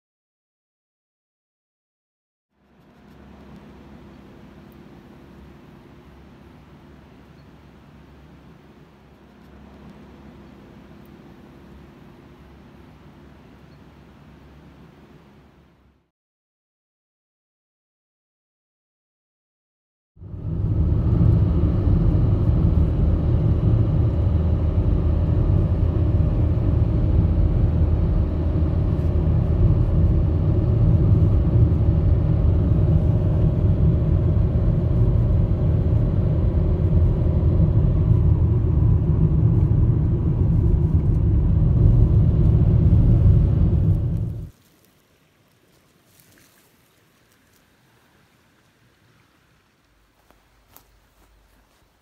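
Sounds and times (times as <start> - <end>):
faint constant tones: 2.6 - 16.1, 20.2 - 52.0
motor vehicle rumble: 20.2 - 44.6.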